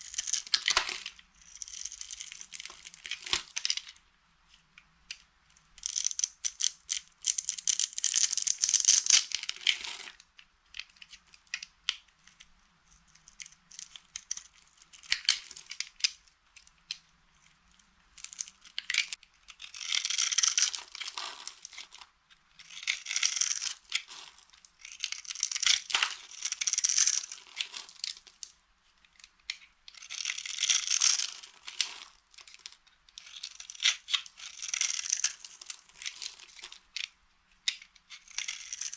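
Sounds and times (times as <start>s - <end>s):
dry soap crushed and crackling: 17.4s - 38.9s.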